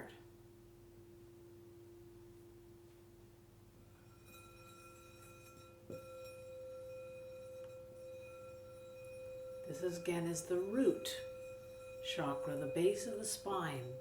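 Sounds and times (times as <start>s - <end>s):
low singing bowl tone: 0.0s - 14.0s
higher singing bowl ringing: 3.8s - 14.0s.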